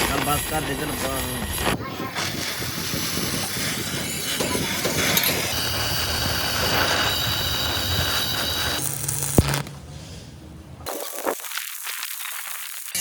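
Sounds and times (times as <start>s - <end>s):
mechanical din: 0.0s - 9.8s
high steady whine: 0.0s - 9.9s.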